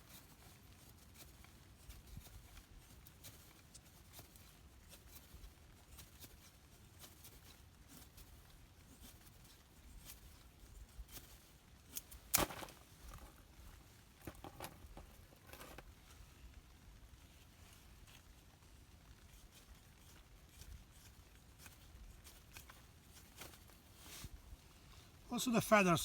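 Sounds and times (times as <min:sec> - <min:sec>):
wood cracking sharply: 0:12.3 - 0:12.8
knife scraping wet wood: 0:19.3 - 0:24.2.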